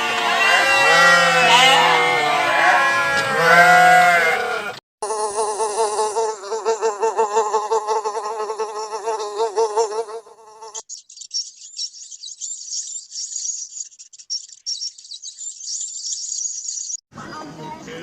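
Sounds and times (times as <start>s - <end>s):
flying insect buzzing: 5.0s - 10.8s
high chirps: 10.8s - 17.0s.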